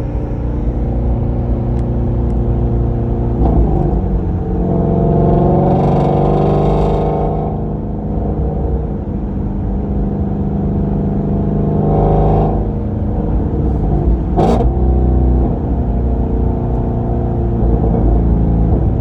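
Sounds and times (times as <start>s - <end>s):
exhaust backfire crack: 0.0s - 7.4s
loud car exhaust drone: 0.0s - 19.0s.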